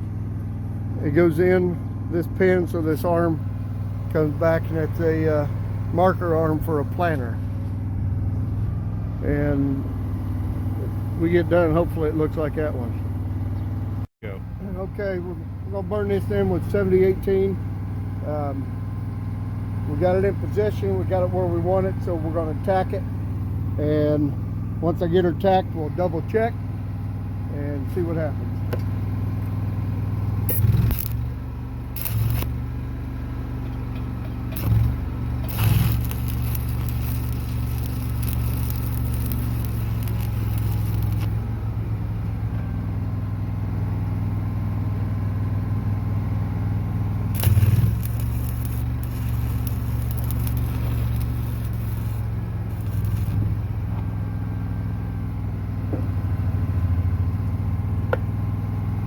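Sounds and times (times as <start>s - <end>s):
engine running: 0.0s - 59.0s
welding arc crackling: 30.4s - 32.8s, 34.4s - 41.6s, 47.3s - 53.8s.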